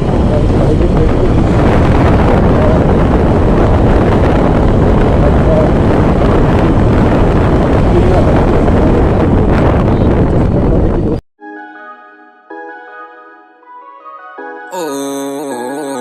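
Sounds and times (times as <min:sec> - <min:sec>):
road noise: 0:00.0 - 0:11.2
wind buffeting microphone: 0:00.0 - 0:11.2.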